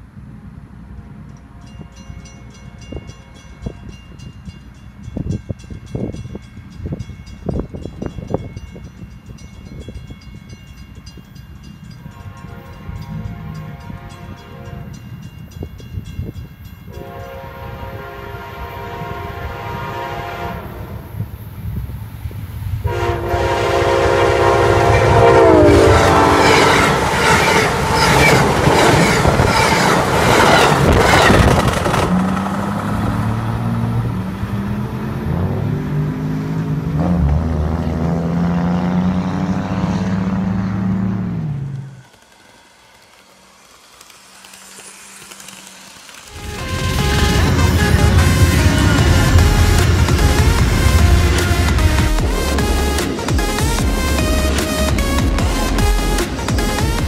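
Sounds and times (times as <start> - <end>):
low train drone: 0.0 - 57.0
train horn blasts: 1.4 - 4.2, 12.0 - 15.2, 16.9 - 21.3, 22.8 - 29.5, 46.3 - 57.0
train wheels clacking over rail joints: 24.8 - 33.7, 41.7 - 57.0.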